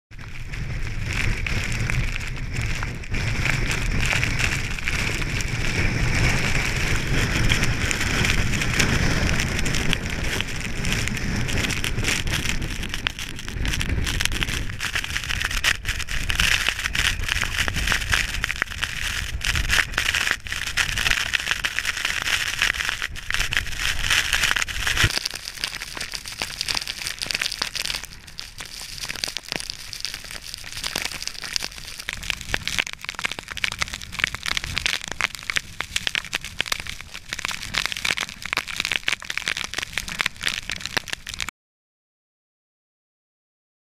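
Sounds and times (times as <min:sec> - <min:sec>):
wind buffeting microphone: 0:00.1 - 0:25.2
snow hissing and ticking: 0:00.1 - 0:41.5.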